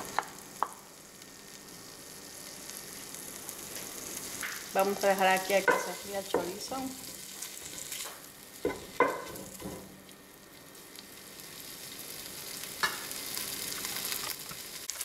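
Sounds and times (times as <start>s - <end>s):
sausage sizzling in a pot: 0.0s - 15.0s
wooden spatula knocking pot: 5.6s - 6.6s, 8.7s - 9.6s.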